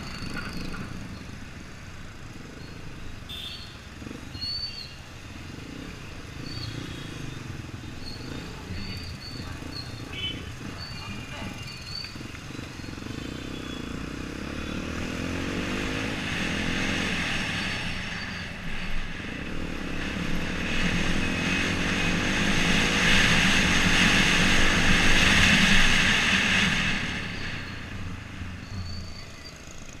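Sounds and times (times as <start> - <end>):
motorcycle engine accelerating: 5.3 - 30.0
rushing wind noise: 14.9 - 29.1.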